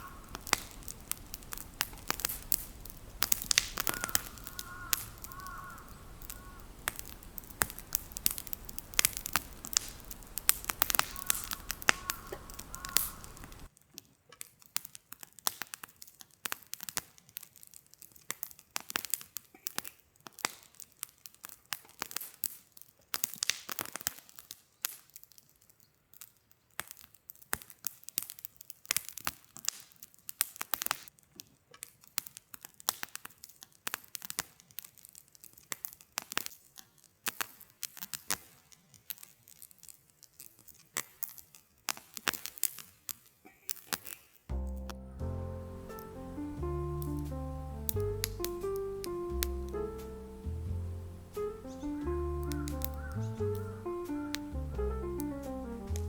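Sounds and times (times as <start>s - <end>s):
steady hiss: 0.0s - 13.7s, 44.5s - 56.0s
wood fire crackling: 0.0s - 13.8s, 32.7s - 56.0s.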